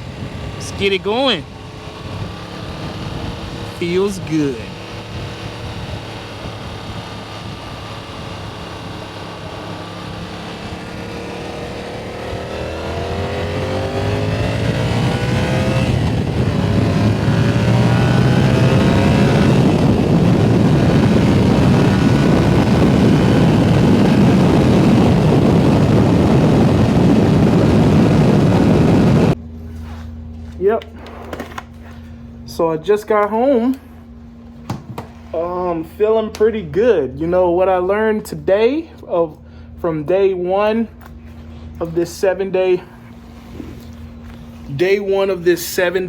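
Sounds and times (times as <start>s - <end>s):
motorcycle engine accelerating: 0.0s - 29.4s
wind rush over microphone: 0.0s - 29.4s.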